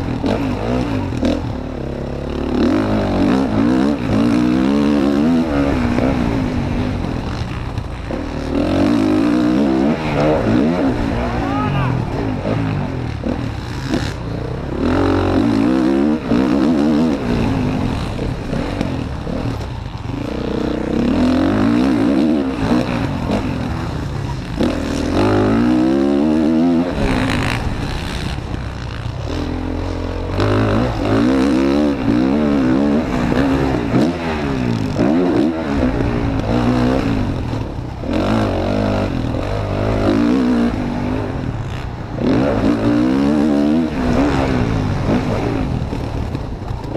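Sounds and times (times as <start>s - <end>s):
motocross bike engine revving: 0.0s - 46.9s.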